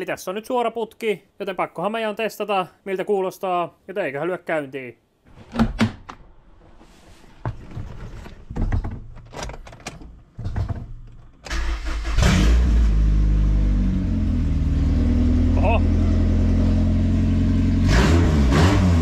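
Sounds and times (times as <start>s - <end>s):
clunks and knocks: 7.4s - 11.5s
car engine starting and running: 9.2s - 19.0s.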